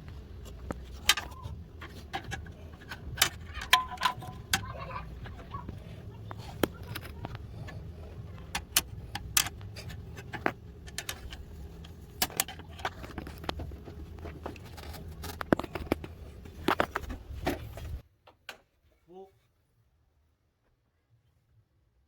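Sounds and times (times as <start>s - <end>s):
steady low hum: 0.0s - 18.0s
metallic clicks and clinks: 0.4s - 5.4s.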